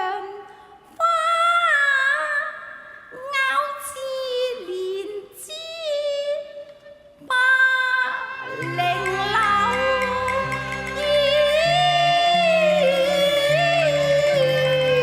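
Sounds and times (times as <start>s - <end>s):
opera music with gliding melody: 0.0s - 15.0s
stepping bass notes: 8.5s - 15.0s.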